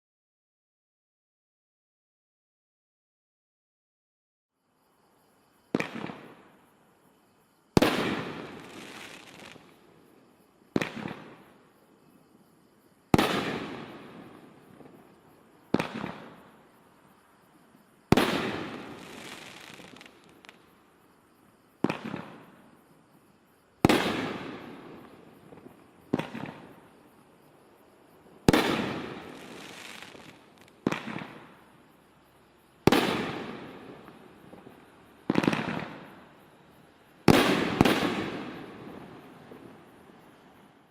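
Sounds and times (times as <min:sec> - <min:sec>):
firework aerial bursts: 0:18.1 - 0:20.6, 0:28.5 - 0:31.5.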